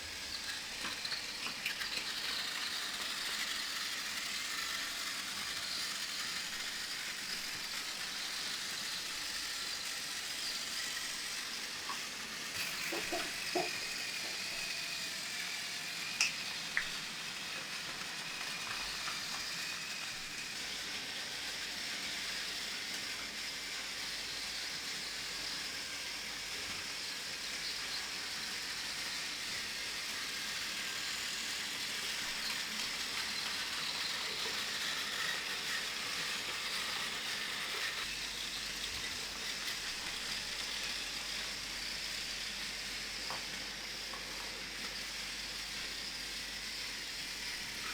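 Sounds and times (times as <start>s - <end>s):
toy trains whirring: 0.0s - 47.9s.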